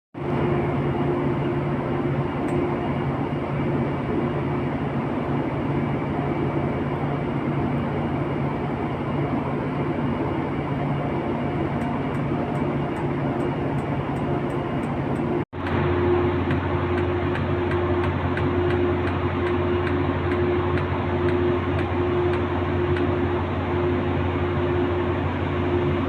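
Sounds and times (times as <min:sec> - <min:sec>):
machinery rumble with low hum: 0:00.2 - 0:26.0.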